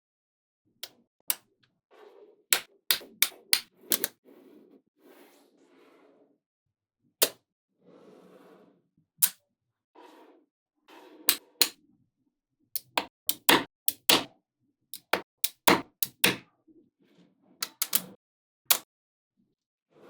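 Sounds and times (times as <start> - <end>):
magnetic balls snapping together: 2.9 - 4.1, 12.8 - 14.3, 15.0 - 16.4, 17.6 - 18.1.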